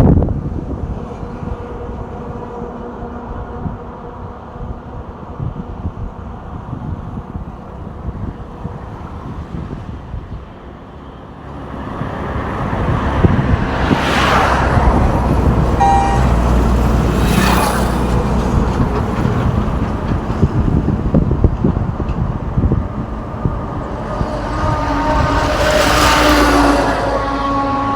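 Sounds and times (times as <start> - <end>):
truck engine rumble: 0.0 - 27.9
vehicles swooshing past: 7.8 - 27.9
brief high tone: 15.8 - 16.8.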